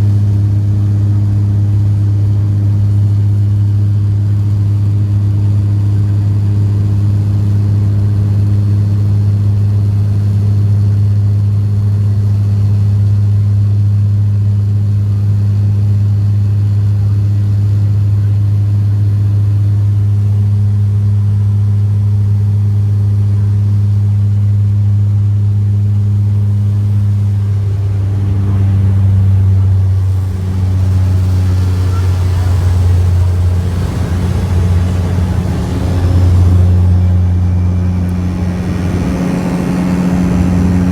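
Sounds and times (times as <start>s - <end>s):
propeller drone in cabin: 0.0s - 40.9s
rushing noise: 27.3s - 40.9s.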